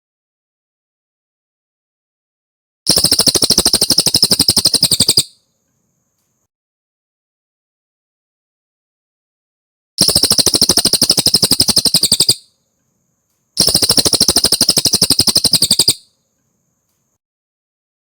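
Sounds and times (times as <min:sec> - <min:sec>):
bird rattling trills: 0:02.9 - 0:05.3, 0:10.0 - 0:12.4, 0:13.6 - 0:16.0.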